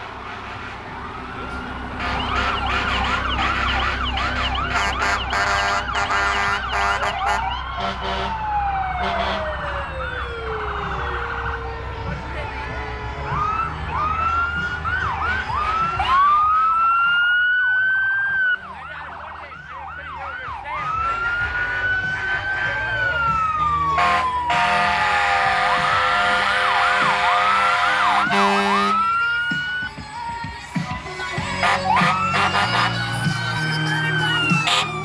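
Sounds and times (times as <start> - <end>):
loud steady horn blast: 0.0 - 9.8, 15.2 - 17.1, 21.0 - 23.2, 23.8 - 29.2, 31.5 - 33.6, 34.7 - 35.0
fire engine sirens wailing: 0.0 - 35.0.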